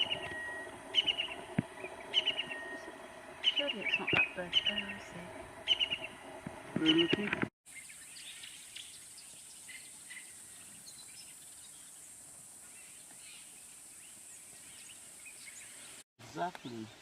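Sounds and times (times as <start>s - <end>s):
bird chirps: 0.0s - 6.2s, 6.8s - 12.0s.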